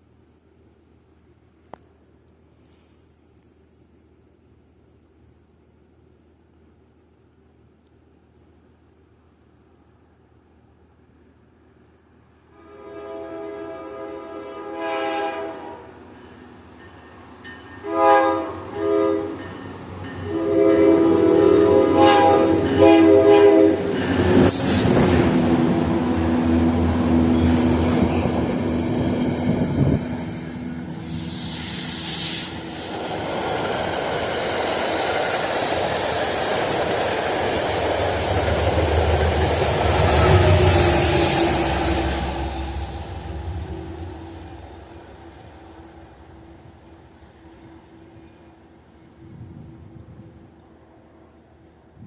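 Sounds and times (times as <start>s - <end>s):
train rumbling past: 12.4s - 52.0s
train horn blasts: 12.5s - 16.2s, 17.8s - 19.6s, 20.2s - 32.7s, 39.7s - 48.2s.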